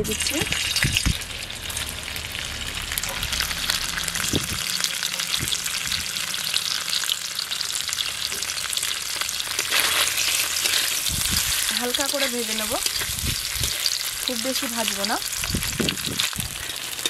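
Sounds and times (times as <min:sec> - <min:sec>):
paneer sizzling in hot oil: 0:00.0 - 0:17.0.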